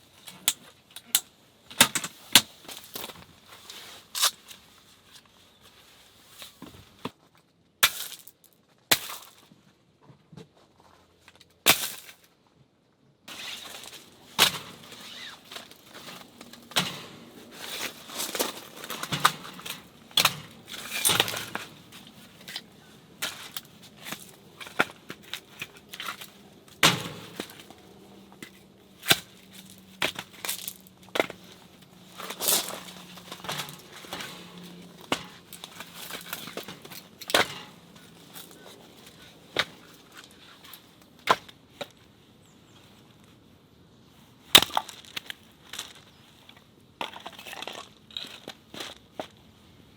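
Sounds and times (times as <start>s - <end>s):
firewood cracking and snapping: 13.3s - 41.9s, 44.5s - 45.9s.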